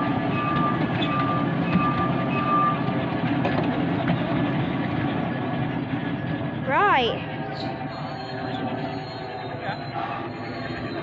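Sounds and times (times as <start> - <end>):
high-pitched wheel squeals: 0.0 - 2.9, 7.4 - 11.0
miniature train rumbling: 0.0 - 11.0.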